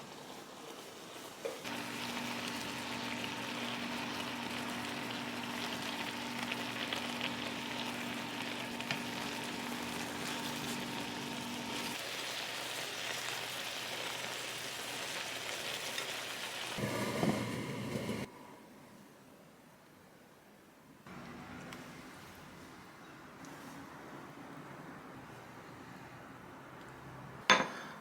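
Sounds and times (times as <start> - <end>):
food sizzling in frying pan: 0.0 - 18.3.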